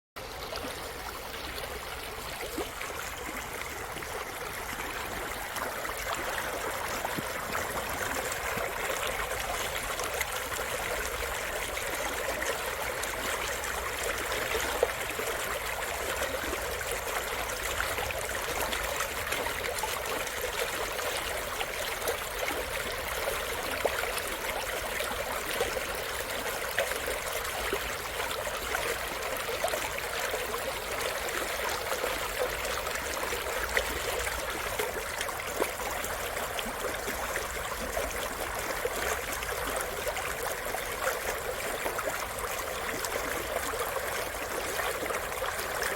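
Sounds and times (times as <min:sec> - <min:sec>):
stream flowing over rocks: 0:00.2 - 0:45.9.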